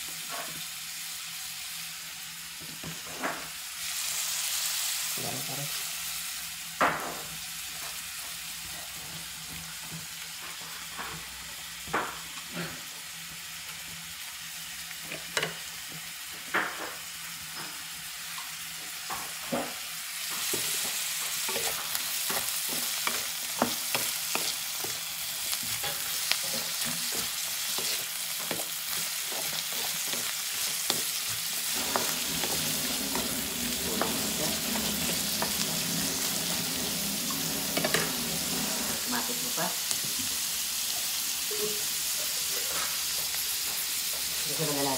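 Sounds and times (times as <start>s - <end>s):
vegetables sizzling in a pan: 0.0s - 44.9s
spatula scraping a pan: 20.4s - 39.4s.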